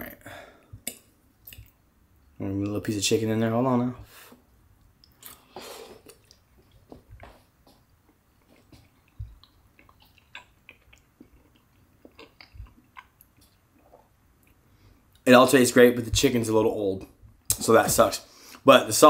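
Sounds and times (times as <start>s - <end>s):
person chewing quietly: 4.4s - 15.2s.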